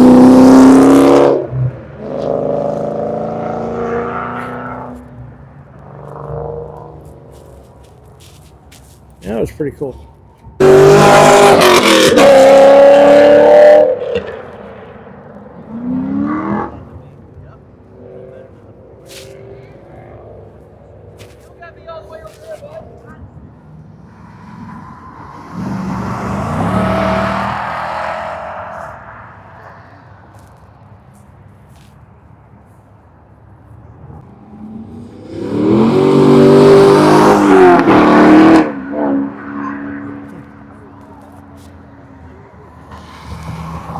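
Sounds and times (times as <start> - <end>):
car engine accelerating hard: 0.0 - 5.1, 10.6 - 17.1, 23.7 - 29.6, 34.0 - 43.9
quieter engine rising in pitch: 23.3 - 30.0.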